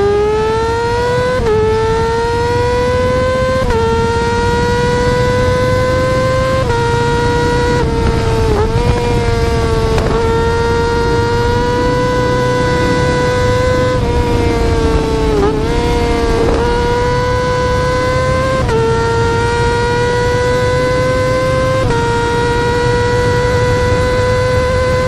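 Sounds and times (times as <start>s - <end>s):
motorcycle engine at high revs: 0.0s - 25.0s.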